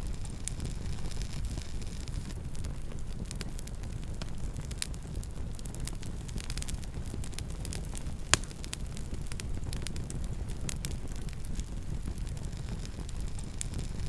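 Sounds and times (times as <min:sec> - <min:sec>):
campfire crackling: 0:00.0 - 0:14.0
sharp fire pop: 0:07.7 - 0:09.9.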